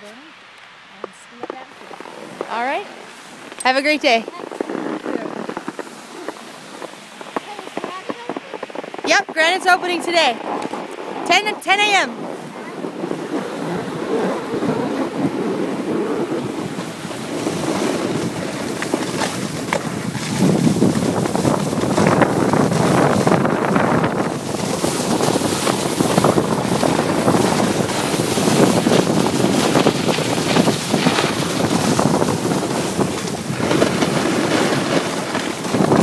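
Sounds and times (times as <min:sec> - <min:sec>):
wind on microphone: 0:00.0 - 0:36.0
skis carving snow: 0:01.0 - 0:36.0.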